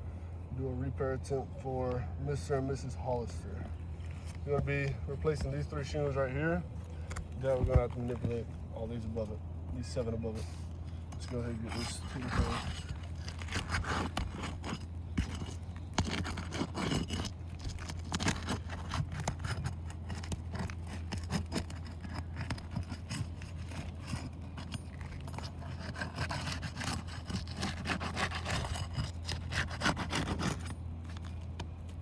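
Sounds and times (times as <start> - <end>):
tools scraping roof shingles: 9.8 - 32.0.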